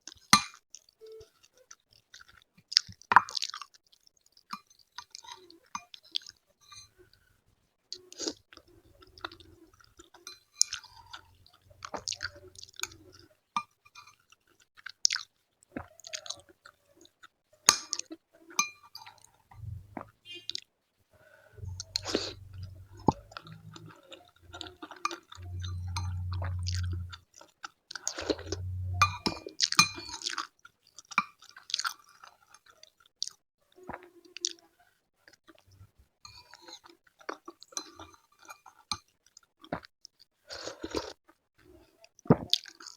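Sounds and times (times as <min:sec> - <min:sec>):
wet chewing and crunching: 0:00.1 - 0:06.4, 0:07.9 - 0:20.6, 0:29.3 - 0:34.7, 0:36.4 - 0:41.3, 0:42.1 - 0:42.9
low muffled rumbles: 0:19.5 - 0:20.2, 0:21.6 - 0:27.2, 0:28.1 - 0:29.4.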